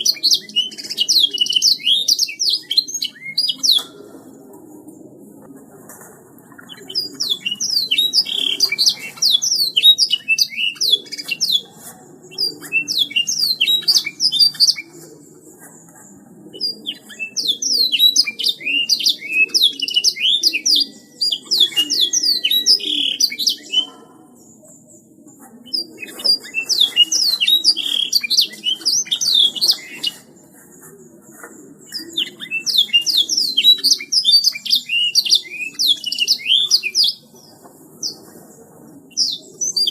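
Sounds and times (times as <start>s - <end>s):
canary singing trills: 0.0s - 4.0s, 6.6s - 15.0s, 16.6s - 24.8s, 25.6s - 30.3s, 31.8s - 38.3s.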